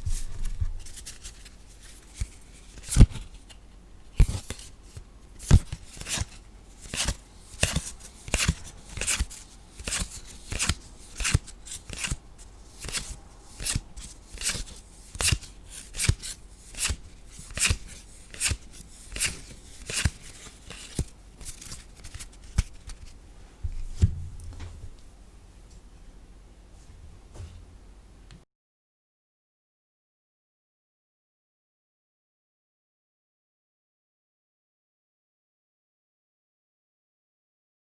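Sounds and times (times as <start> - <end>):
dull thump: 23.6 - 25.0.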